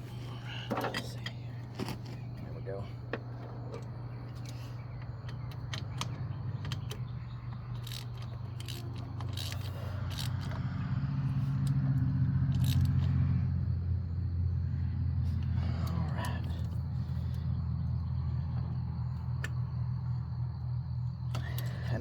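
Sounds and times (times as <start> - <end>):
low engine hum: 0.0 - 22.0
hand tools clicking on metal: 5.2 - 10.6.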